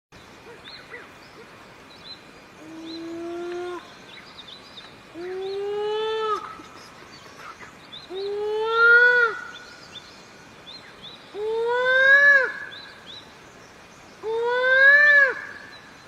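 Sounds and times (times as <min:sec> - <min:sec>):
bird long drawn-out calls: 0:02.6 - 0:04.2, 0:05.1 - 0:10.0, 0:11.3 - 0:13.1, 0:14.2 - 0:16.0.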